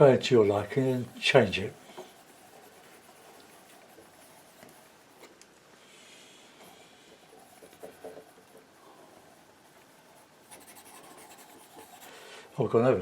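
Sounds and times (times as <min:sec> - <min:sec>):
painting knife scraping canvas: 0:00.0 - 0:05.4.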